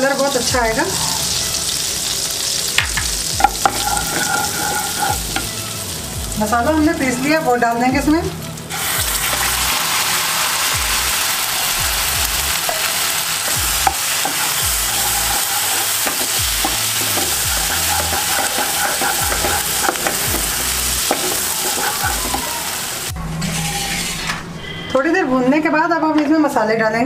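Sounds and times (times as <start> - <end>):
paste sizzling in hot oil: 0.0 - 7.4, 8.6 - 23.1
wooden spatula scraping pan: 3.4 - 5.6, 13.5 - 22.8.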